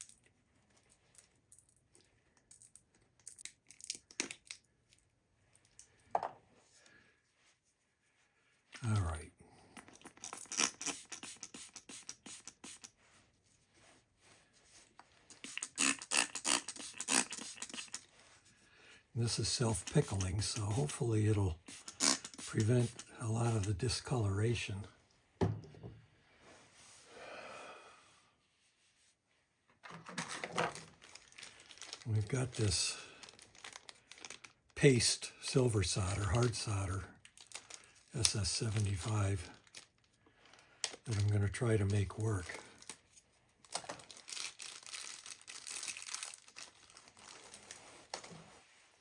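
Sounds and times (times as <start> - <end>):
soft breath out: 26.0 - 28.4
crinkly packaging handling: 29.8 - 34.8, 35.8 - 49.0.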